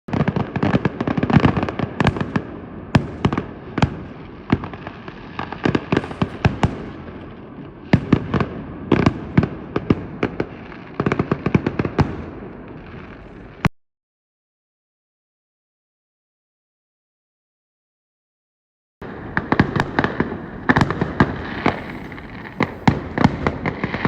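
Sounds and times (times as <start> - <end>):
firecrackers popping: 0.1 - 13.7, 19.0 - 24.0.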